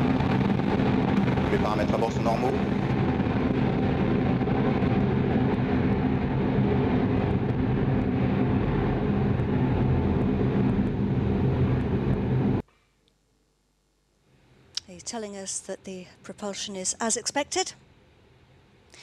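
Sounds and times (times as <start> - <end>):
rocket engines roaring: 0.0 - 12.6.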